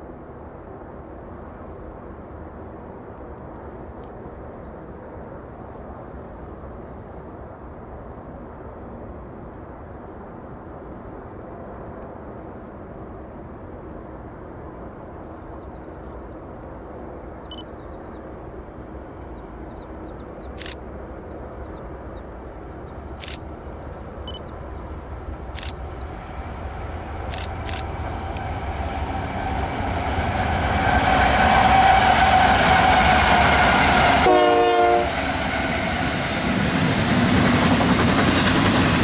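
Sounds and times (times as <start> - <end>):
freight train rumble: 0.0 - 39.0
faint high chirps: 17.3 - 18.2, 24.0 - 26.0
sharp clicks: 20.6 - 20.8, 23.2 - 23.5, 25.6 - 25.9, 27.3 - 28.0.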